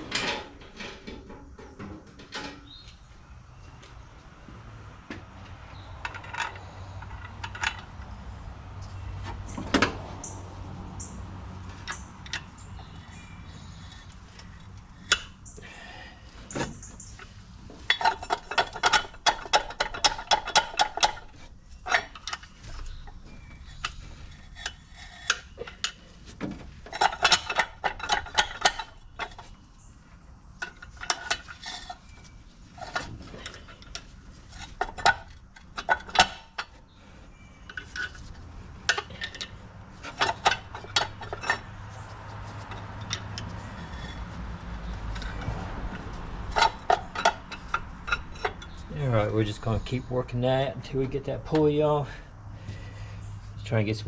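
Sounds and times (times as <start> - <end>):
hand tools clinking on metal: 11.8 - 26.2, 26.8 - 29.5, 37.6 - 52.2.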